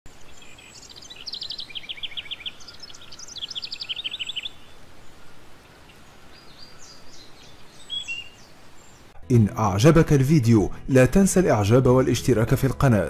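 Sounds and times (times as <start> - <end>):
small bird trilling: 0.4 - 9.1.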